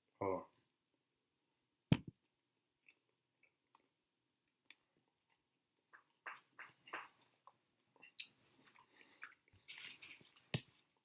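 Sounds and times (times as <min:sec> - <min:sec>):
person chewing with wet smacks: 0:02.8 - 0:09.8.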